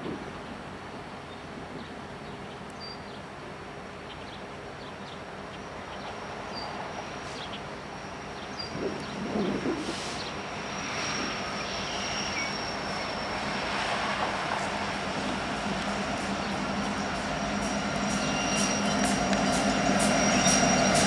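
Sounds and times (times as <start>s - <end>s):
diesel locomotive rumble: 6.7s - 21.0s.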